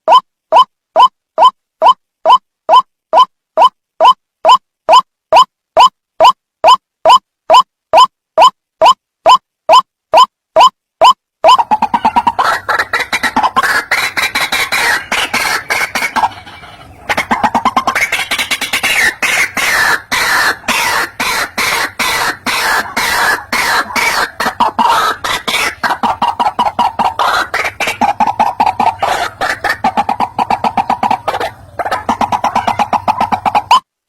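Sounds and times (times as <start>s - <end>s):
waterhen calling harsh notes: 11.4s - 33.8s.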